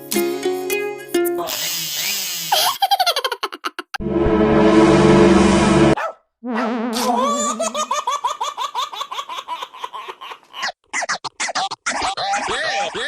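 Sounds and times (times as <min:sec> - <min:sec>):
high-pitched laughter: 0:02.5 - 0:04.0, 0:06.9 - 0:10.8, 0:11.4 - 0:13.0.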